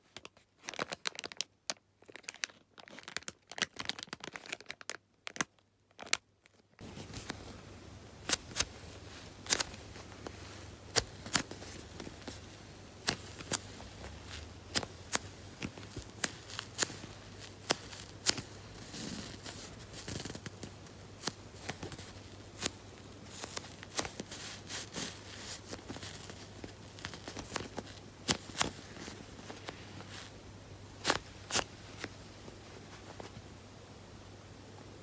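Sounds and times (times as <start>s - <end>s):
rustling: 6.8s - 33.6s.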